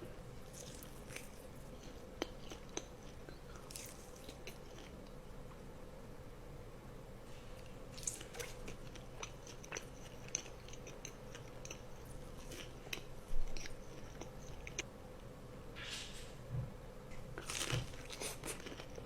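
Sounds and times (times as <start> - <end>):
person chewing and crunching food: 0.4 - 5.1, 7.5 - 14.9, 17.4 - 19.0.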